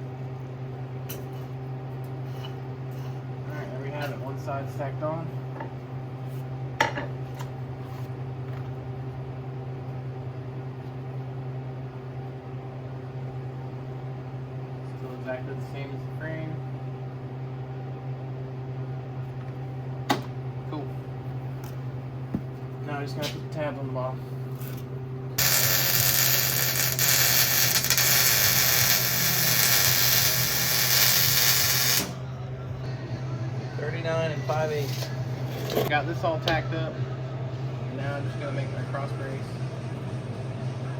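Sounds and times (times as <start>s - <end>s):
low electrical hum: 0.0s - 40.9s
welder hissing and humming: 25.4s - 32.2s.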